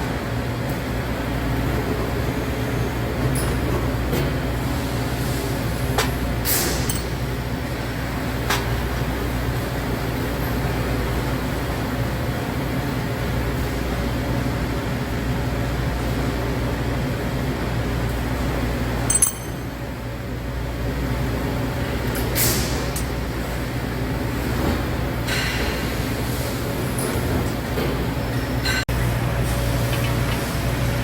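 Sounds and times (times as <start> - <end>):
low mechanical hum: 0.0 - 31.0
metallic clink: 6.8 - 7.2, 19.1 - 19.8.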